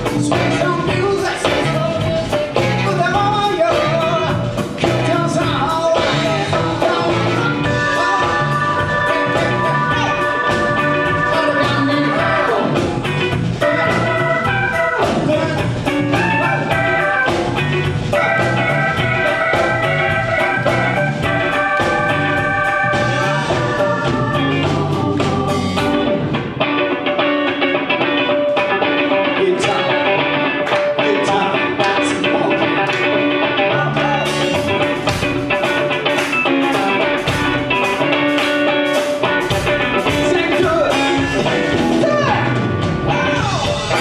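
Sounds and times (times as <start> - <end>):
person singing: 0.0 - 17.4, 18.1 - 26.2, 28.9 - 38.4
drum beat: 0.0 - 26.4, 30.6 - 44.0
guitar: 0.0 - 44.0
live band playing upbeat song: 0.0 - 44.0.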